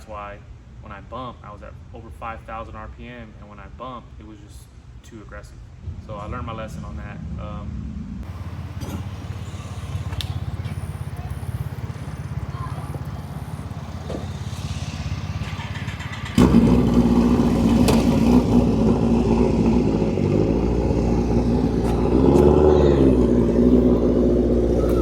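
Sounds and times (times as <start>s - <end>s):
engine idling and revving: 6.3s - 25.0s.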